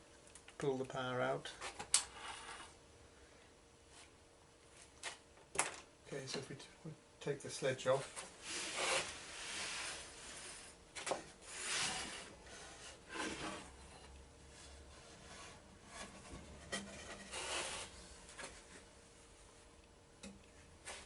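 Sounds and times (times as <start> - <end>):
wood scraping on saw table: 15.0 - 18.0.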